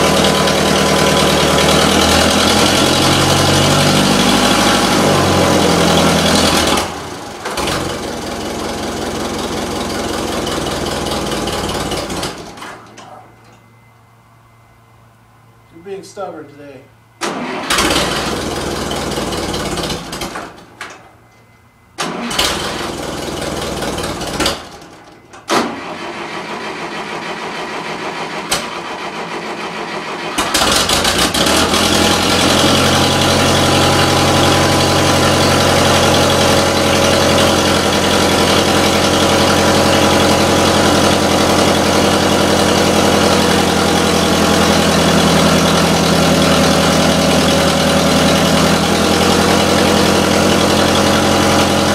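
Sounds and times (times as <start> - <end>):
tractor engine running: 0.0 - 13.9, 17.2 - 51.9
starter cranking engine: 17.2 - 20.4, 22.0 - 24.8, 30.3 - 51.9.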